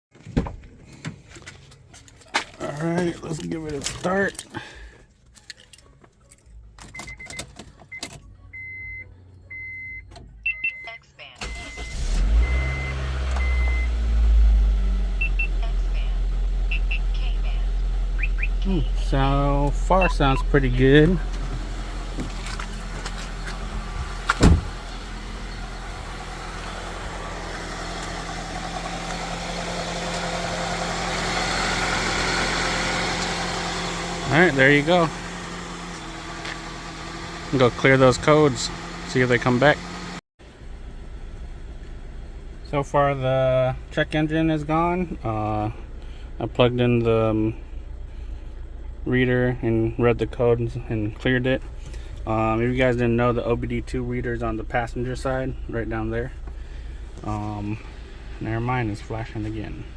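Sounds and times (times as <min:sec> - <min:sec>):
car warning beep: 0:06.9 - 0:21.3
car engine idling: 0:11.4 - 0:59.9.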